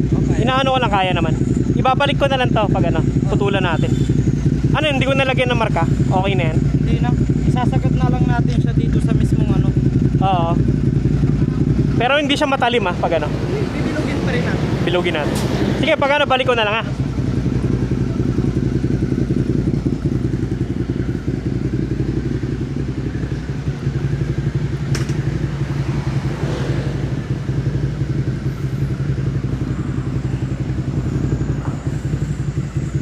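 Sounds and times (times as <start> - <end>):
motorcycle engine idling: 0.0 - 33.0
sharp click: 24.9 - 25.2.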